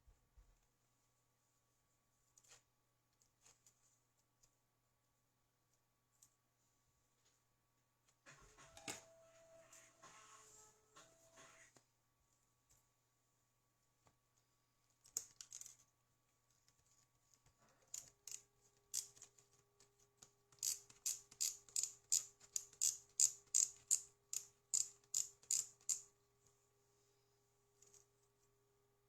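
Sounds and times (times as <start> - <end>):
small mechanism clicking: 20.5 - 26.0.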